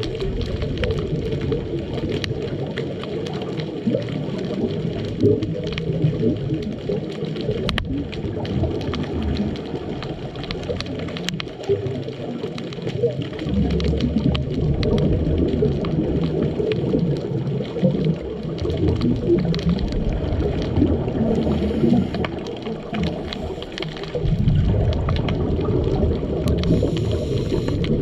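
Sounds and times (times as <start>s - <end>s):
muffled underwater rumble: 0.0s - 28.0s
faint clicks: 7.6s - 11.8s, 17.1s - 28.0s.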